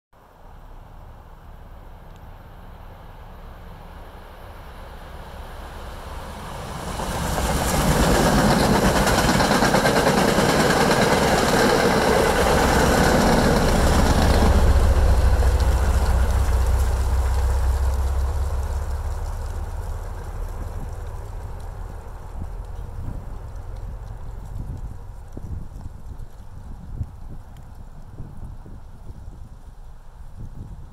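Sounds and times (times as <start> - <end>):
deep diesel engine drone: 0.4 - 25.1
train wheels rushing on rails: 4.4 - 27.6.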